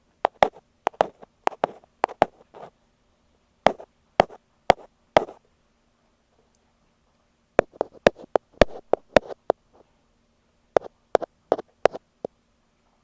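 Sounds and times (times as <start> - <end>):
ear pick tapping on microphone: 0.2 - 2.7, 3.7 - 5.4, 7.6 - 9.6, 10.8 - 12.0.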